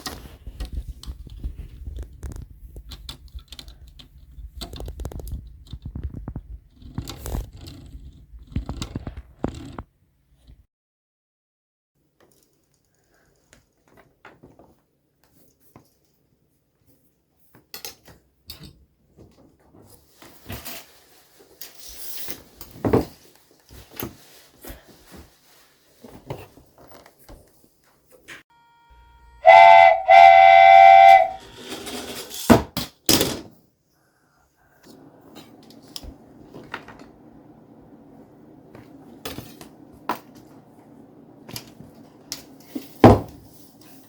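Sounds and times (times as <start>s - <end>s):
whistle toots: 29.3s - 31.4s.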